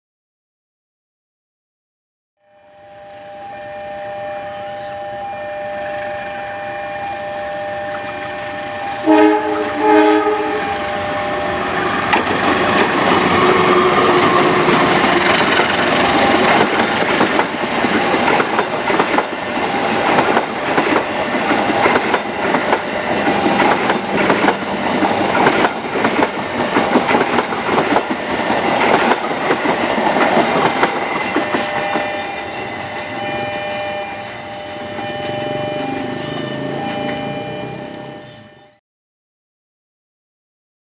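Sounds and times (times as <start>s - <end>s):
steady two-note tone: 2.4s - 12.2s, 31.0s - 38.8s
train horn blasts: 2.4s - 18.4s, 19.2s - 38.8s
train wheels clattering over joints: 8.3s - 33.8s.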